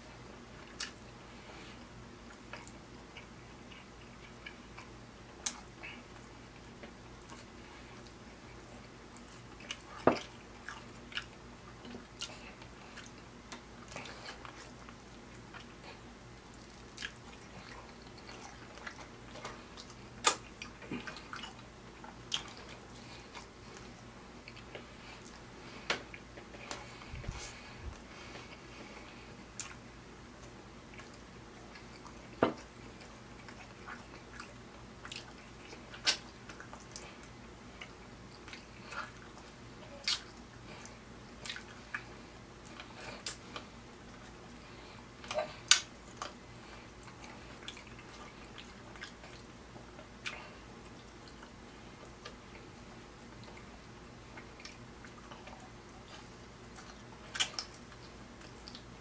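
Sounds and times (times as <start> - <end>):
mouth chewing: 0.6 - 29.8, 30.4 - 58.9
wet lip smacks and clicks: 18.0 - 22.8, 33.4 - 40.4, 41.4 - 43.7, 56.7 - 58.9.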